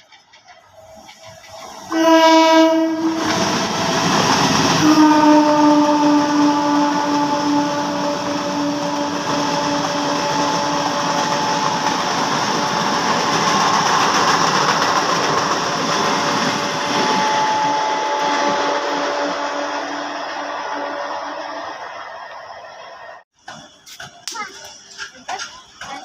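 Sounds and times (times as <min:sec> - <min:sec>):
train rushing past: 0:00.0 - 0:23.8
steady tone: 0:06.0 - 0:23.2.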